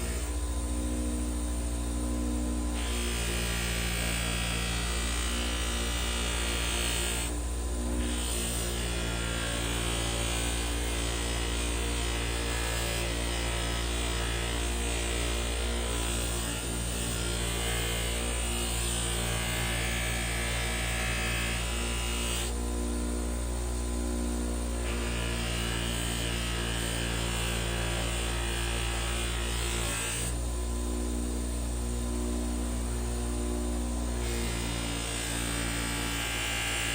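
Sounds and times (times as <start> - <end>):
blade hissing on buffing wheel: 0.0 - 1.1, 2.7 - 22.6
bench grinder motor running: 0.0 - 36.9.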